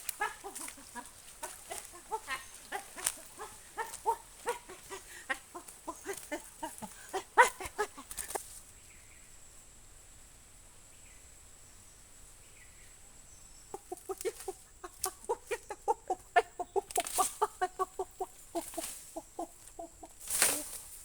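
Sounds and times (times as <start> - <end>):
ducks quacking: 0.0 - 8.4
scuffling noises: 0.0 - 8.7.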